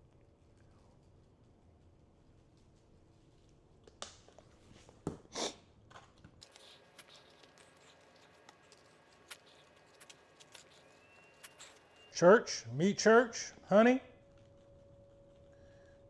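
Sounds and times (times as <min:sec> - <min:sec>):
seasoning shaker rasping: 0:06.4 - 0:12.2.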